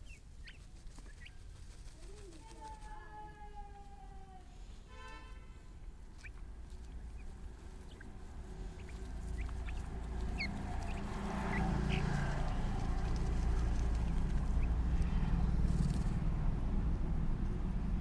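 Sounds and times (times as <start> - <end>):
birds chirping: 0.0 - 2.2, 6.0 - 16.2
low rumble: 6.5 - 18.0.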